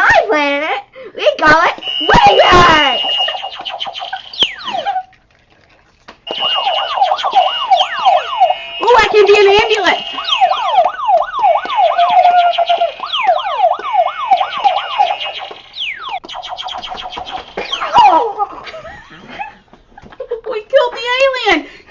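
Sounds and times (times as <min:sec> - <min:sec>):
electronic toy sound effects: 0:01.8 - 0:05.0, 0:06.3 - 0:18.3
toy siren wail: 0:01.8 - 0:05.1, 0:06.3 - 0:16.2, 0:17.4 - 0:18.4.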